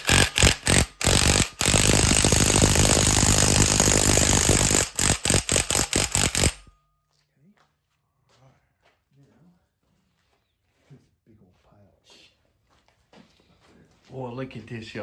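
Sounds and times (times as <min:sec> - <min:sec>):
impact wrench hammering: 0:00.0 - 0:06.7.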